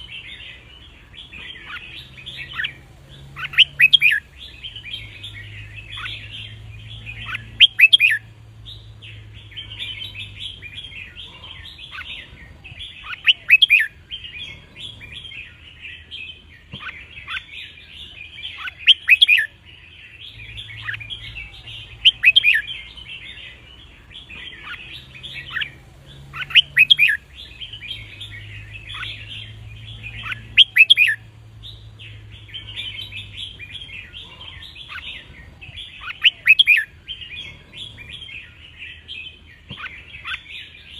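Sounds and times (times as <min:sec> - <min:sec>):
bird twittering: 0:00.0 - 0:40.9
bird whistled phrases: 0:07.2 - 0:08.2, 0:35.9 - 0:36.9.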